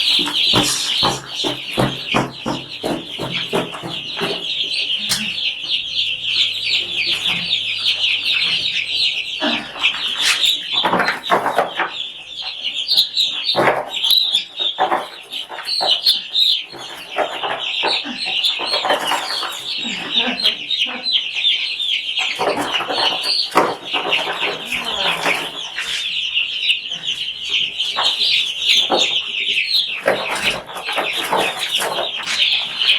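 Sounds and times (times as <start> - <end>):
knocks and rustles: 0.0 - 5.4
chicks peeping: 0.0 - 32.9.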